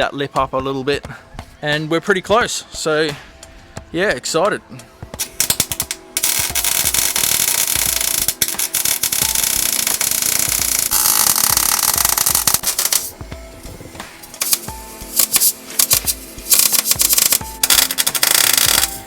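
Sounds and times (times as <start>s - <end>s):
welder crackling sizzle: 5.2s - 19.0s.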